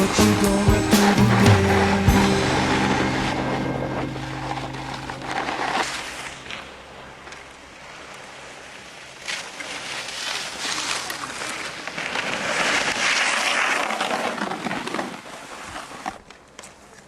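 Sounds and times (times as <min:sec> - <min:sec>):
snowboard scraping over snow: 0:00.0 - 0:06.3, 0:09.3 - 0:16.1
song: 0:00.0 - 0:06.8.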